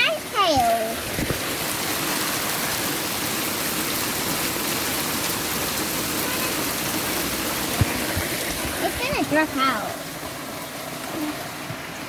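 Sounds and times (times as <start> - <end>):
heavy rain and hail: 0.0 - 11.9.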